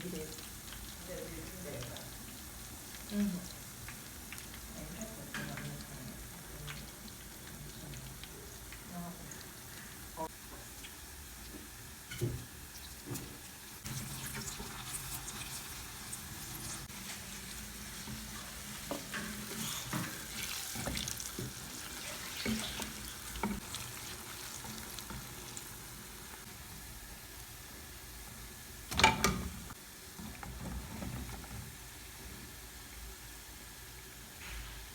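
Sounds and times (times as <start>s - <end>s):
plantain sizzling in hot oil: 0.0s - 34.9s
stirring clicks and scrapes: 18.0s - 25.3s, 30.2s - 31.8s.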